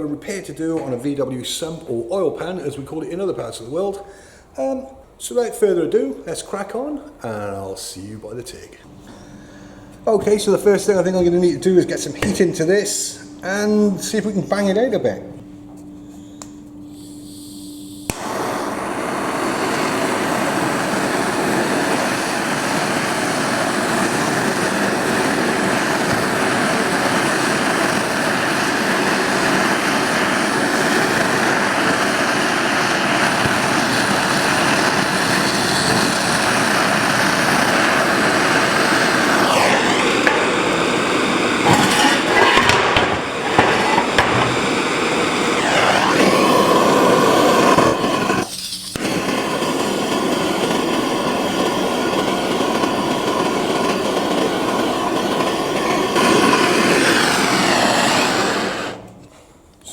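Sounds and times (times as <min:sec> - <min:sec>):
gas torch running: 0:08.8 - 0:59.4.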